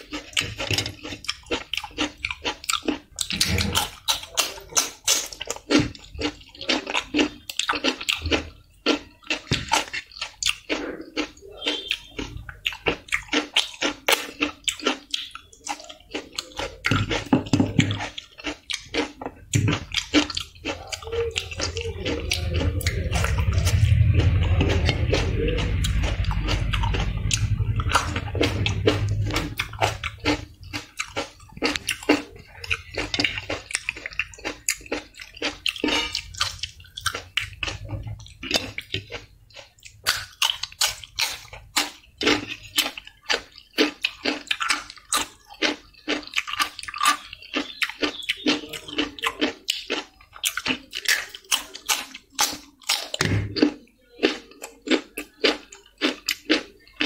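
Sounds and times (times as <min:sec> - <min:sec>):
person crunching raw vegetables: 0:00.0 - 0:57.0
wet mouth clicks: 0:09.4 - 0:24.4.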